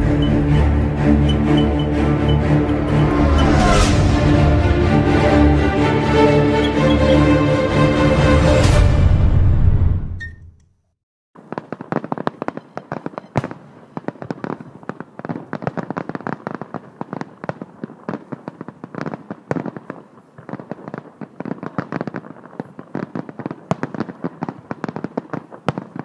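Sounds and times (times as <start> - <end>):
fireworks crackling and banging: 11.4 - 26.0.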